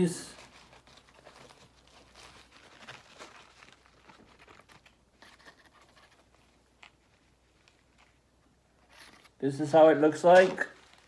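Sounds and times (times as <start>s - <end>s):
paper packaging crinkling: 0.3s - 6.2s, 10.1s - 11.0s.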